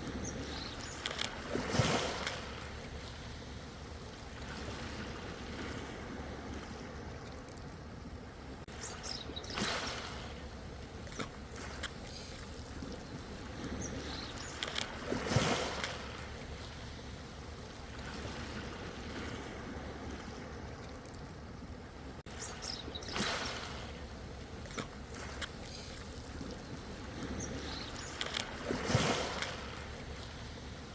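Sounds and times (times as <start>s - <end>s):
ocean waves washing in: 0.0s - 7.2s, 8.4s - 21.0s, 21.6s - 30.9s.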